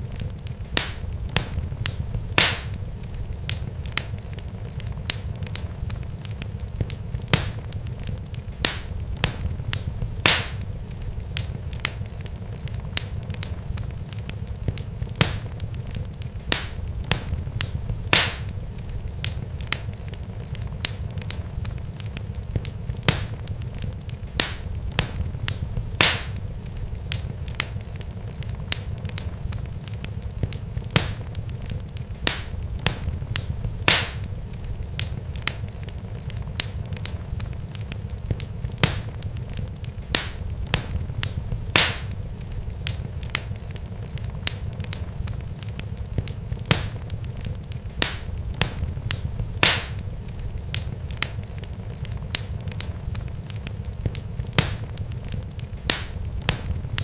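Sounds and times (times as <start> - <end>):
sharp pops and crackles: 0.0 - 57.0
steady low rumble: 0.0 - 57.0.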